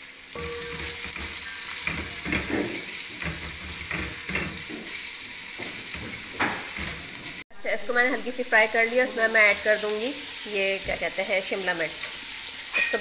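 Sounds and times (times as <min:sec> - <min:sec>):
spatula stirring strokes: 0:00.0 - 0:07.4
carrots sizzling in hot oil: 0:00.0 - 0:13.0.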